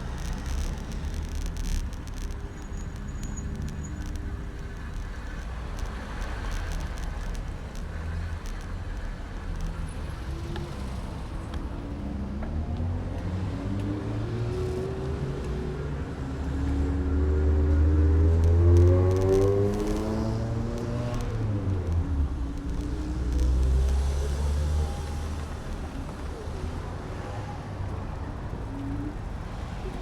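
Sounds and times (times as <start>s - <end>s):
vehicle engine accelerating: 0.0s - 26.7s
road and wind rumble: 0.0s - 30.0s
street traffic: 0.0s - 30.0s.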